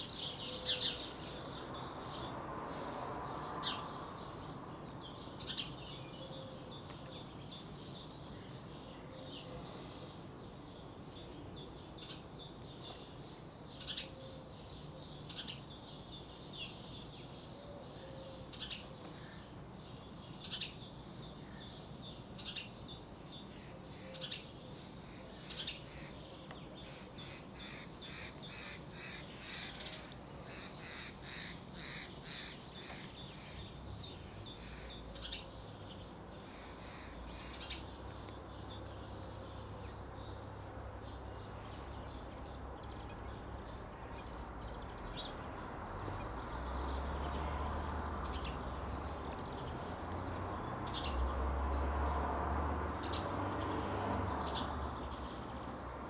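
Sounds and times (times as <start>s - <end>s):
bird calling: 23.4s - 33.8s.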